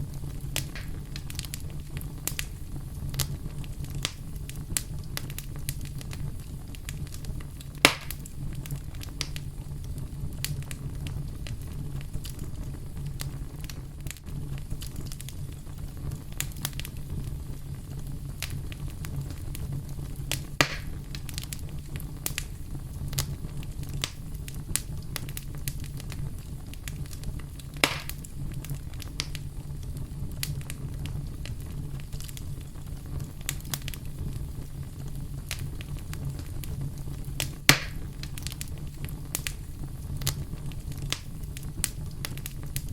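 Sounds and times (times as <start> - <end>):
campfire crackling: 0.0 - 42.9
loud wood pops: 0.6 - 1.0, 7.8 - 8.3, 20.6 - 21.0, 27.8 - 28.3, 37.7 - 38.0.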